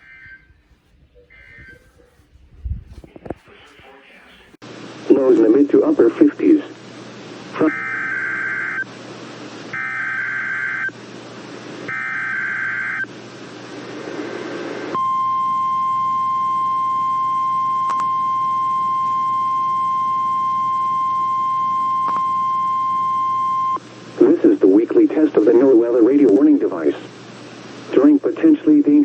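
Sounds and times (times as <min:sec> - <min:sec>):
radio hiss: 0:02.9 - 0:15.0, 0:20.4 - 0:29.0
steady warning alarm tone: 0:07.6 - 0:08.9, 0:09.7 - 0:11.0, 0:11.9 - 0:13.1, 0:15.0 - 0:23.9.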